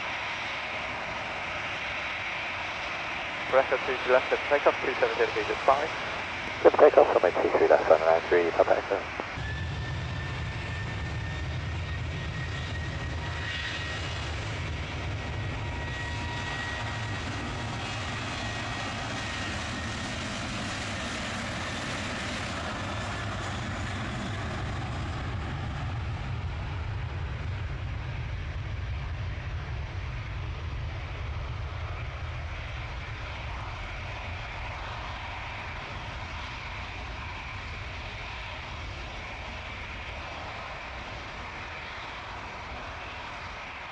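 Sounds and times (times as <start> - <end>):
airliner engines at takeoff: 0.0 - 43.9
thin high engine whine: 2.0 - 11.5.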